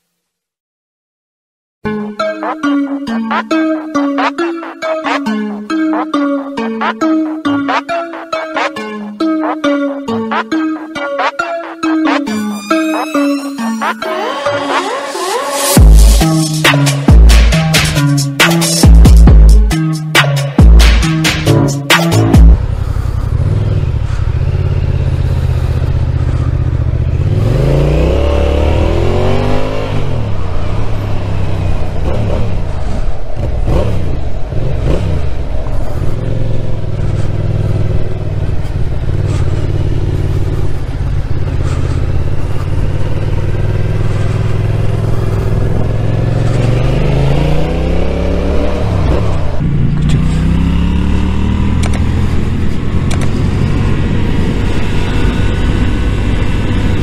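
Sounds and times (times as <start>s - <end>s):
motorcycle engine revving: 20.6s - 57.0s
wind noise: 52.3s - 57.0s.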